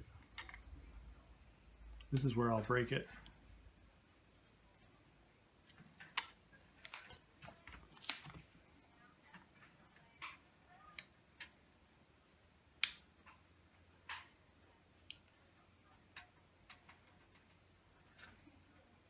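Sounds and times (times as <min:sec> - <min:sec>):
plastic parts snapping: 0:06.0 - 0:08.4, 0:12.8 - 0:13.1.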